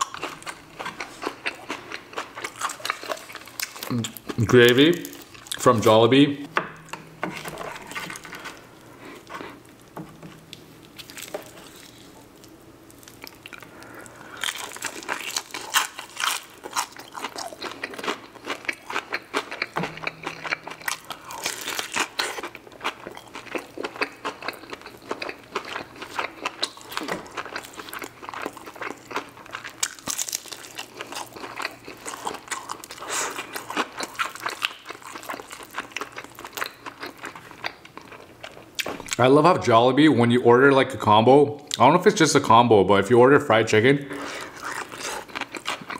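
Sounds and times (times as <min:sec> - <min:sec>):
crunching fried chicken: 0:00.0 - 0:05.9, 0:10.5 - 0:39.3, 0:44.3 - 0:45.9.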